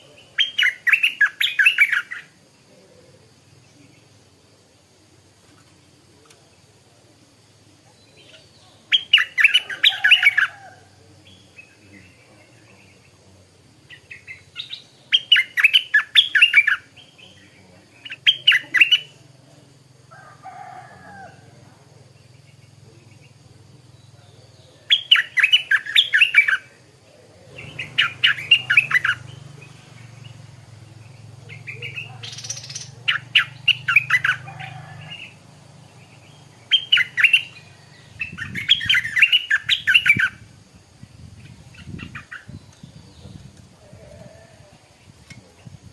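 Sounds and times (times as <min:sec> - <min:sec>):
faint low hum: 0:00.0 - 0:45.9
bulbul singing chirpy phrases: 0:05.9 - 0:19.9, 0:22.0 - 0:43.5.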